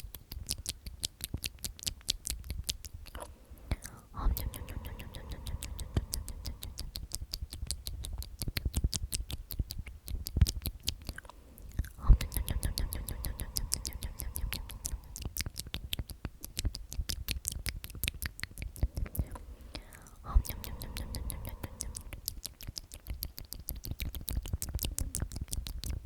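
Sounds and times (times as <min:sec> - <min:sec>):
wet mouth clicks: 0:00.0 - 0:26.0
person whispering: 0:03.2 - 0:07.0, 0:11.2 - 0:15.6, 0:18.6 - 0:22.6, 0:24.8 - 0:25.3.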